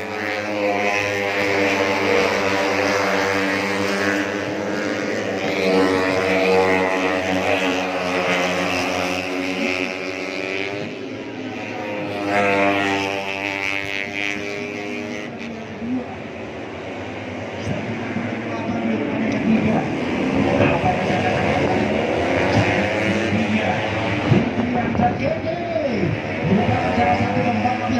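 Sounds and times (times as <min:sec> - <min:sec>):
motorcycles racing at high revs: 0:00.0 - 0:27.9.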